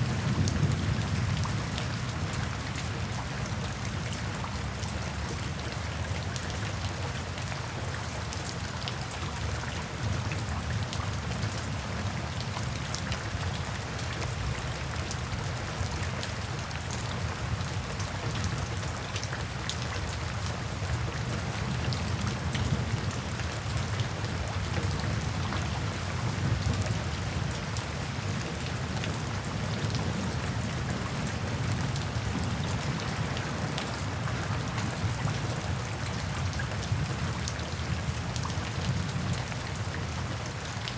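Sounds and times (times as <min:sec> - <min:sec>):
rain falling: 0:00.0 - 0:40.9
raindrops ticking on a surface: 0:00.0 - 0:40.9.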